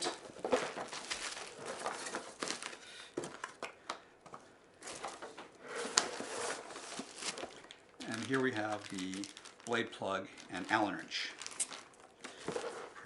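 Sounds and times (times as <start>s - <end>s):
packaging crinkling and rustling: 0.0s - 3.8s, 4.8s - 13.0s.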